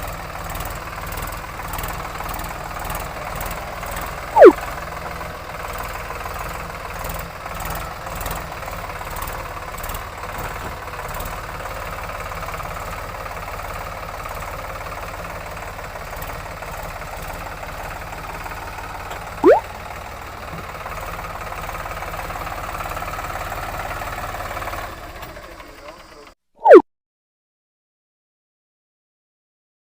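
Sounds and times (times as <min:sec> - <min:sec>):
tractor diesel engine running: 0:00.0 - 0:26.3
loud rising whistle-like tone: 0:04.4 - 0:04.6, 0:19.4 - 0:19.6, 0:26.6 - 0:26.8.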